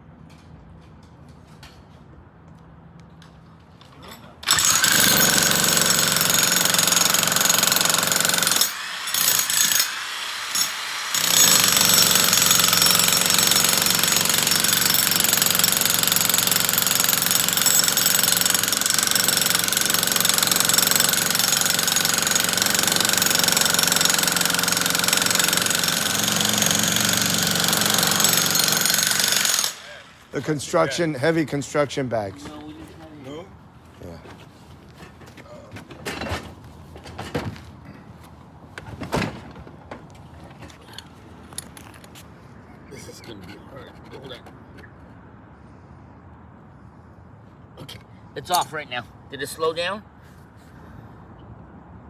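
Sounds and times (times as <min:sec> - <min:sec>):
electric jackhammer hammering: 0:04.4 - 0:30.6.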